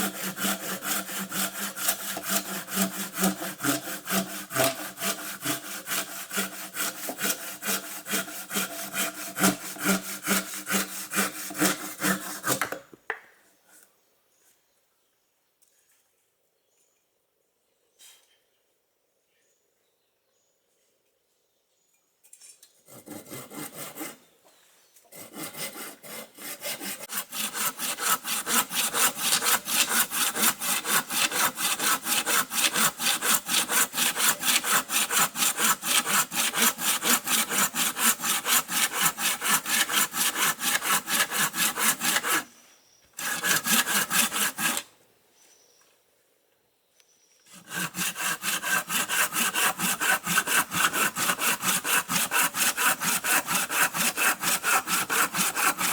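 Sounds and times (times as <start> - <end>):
handsaw cutting wood: 0.0 - 12.7, 22.9 - 24.3, 25.1 - 42.5, 43.2 - 44.9, 47.5 - 55.9.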